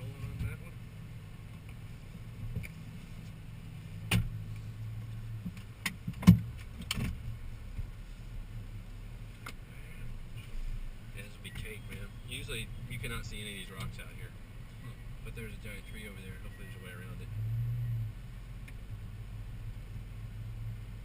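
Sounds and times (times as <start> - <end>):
sharp knocks and clunks: 5.4 - 7.3.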